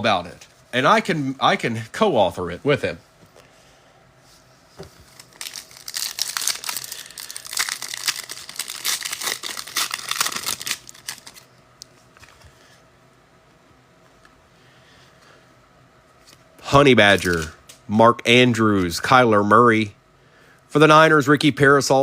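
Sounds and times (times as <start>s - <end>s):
foil wrapper tearing and crinkling: 5.1s - 11.4s, 17.1s - 17.5s.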